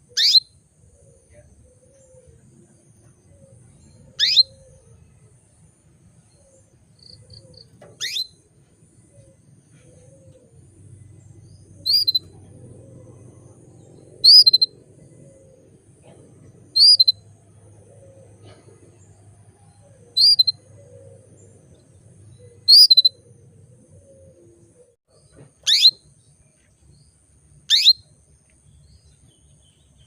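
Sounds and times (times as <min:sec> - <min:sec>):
canary chirping: 0:00.1 - 0:00.5, 0:03.9 - 0:04.8, 0:07.0 - 0:08.4, 0:11.1 - 0:15.8, 0:16.4 - 0:17.3, 0:20.1 - 0:23.3, 0:25.6 - 0:26.0, 0:27.7 - 0:28.1
faint short peeps: 0:07.3 - 0:08.4, 0:16.8 - 0:17.2, 0:25.2 - 0:26.0.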